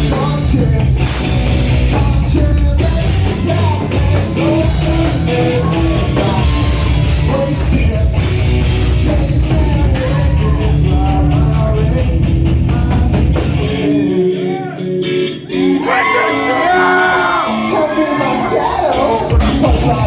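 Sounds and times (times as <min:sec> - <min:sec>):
drum kit: 0:00.0 - 0:14.1, 0:18.6 - 0:20.0
bass guitar: 0:00.0 - 0:20.0
distorted guitars: 0:00.0 - 0:20.0
person singing: 0:00.0 - 0:20.0.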